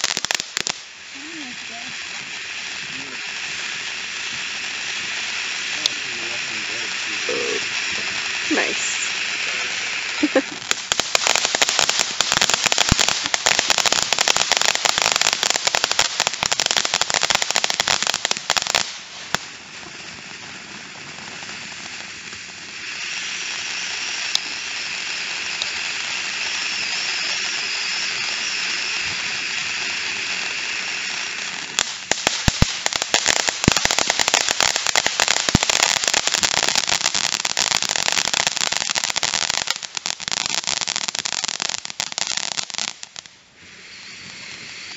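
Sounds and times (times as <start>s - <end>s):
firework hiss: 0.0s - 44.9s
fireworks crackling: 0.0s - 44.9s
faint high whistle: 22.9s - 31.1s, 43.6s - 44.9s.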